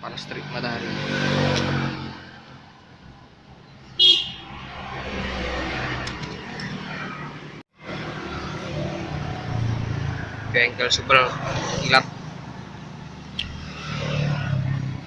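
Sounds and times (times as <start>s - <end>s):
road vehicle drone: 0.0s - 15.0s
high-pitched horn toot: 4.0s - 4.5s.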